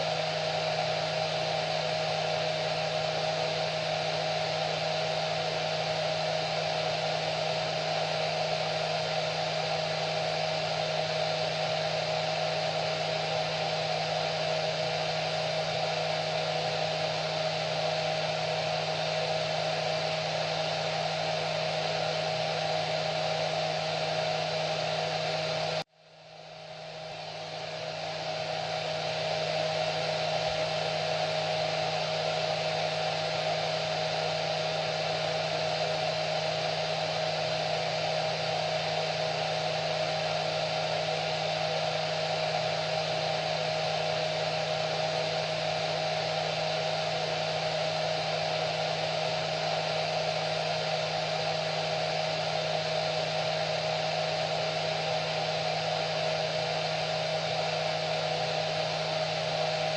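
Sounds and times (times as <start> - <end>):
hair dryer running: 0.0 - 25.9, 26.5 - 59.9.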